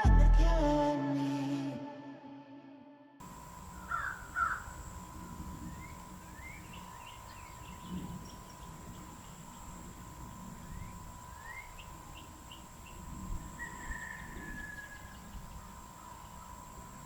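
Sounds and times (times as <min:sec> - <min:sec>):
steady high hum: 0:03.2 - 0:17.0
birds chirping and calling: 0:03.5 - 0:16.6.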